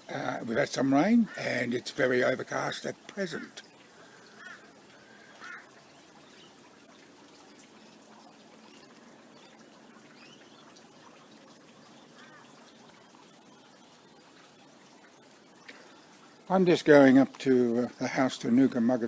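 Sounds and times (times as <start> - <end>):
steady low hiss: 0.0 - 19.0
short bird calls: 3.4 - 5.8.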